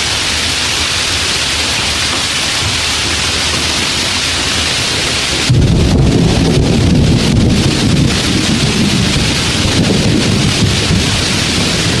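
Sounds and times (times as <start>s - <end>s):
heavy rain hissing: 0.0s - 12.0s
thunder rumbling: 2.6s - 12.0s.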